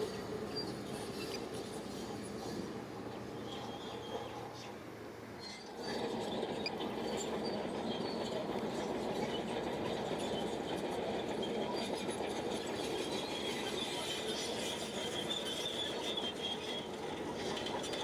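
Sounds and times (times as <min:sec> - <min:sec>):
bulldozer tracks clattering: 0:05.4 - 0:18.0
high thin track squeal: 0:11.4 - 0:18.0.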